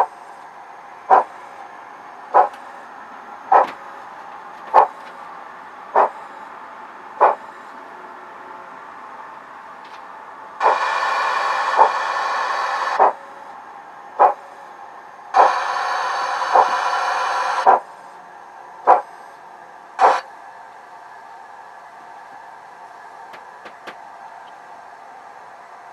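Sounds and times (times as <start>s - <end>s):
low background hum: 0.0s - 25.9s
model train steam hiss: 10.6s - 13.2s, 15.3s - 17.8s, 20.0s - 20.3s
short steam puffs: 10.6s - 13.3s.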